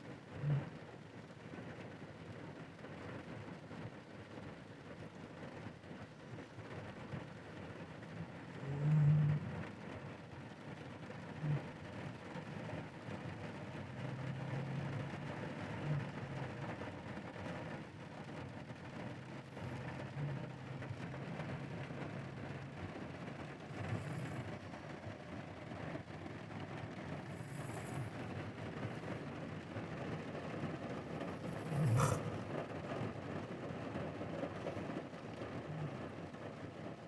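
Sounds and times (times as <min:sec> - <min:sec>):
rain hissing: 0:13.5 - 0:36.6.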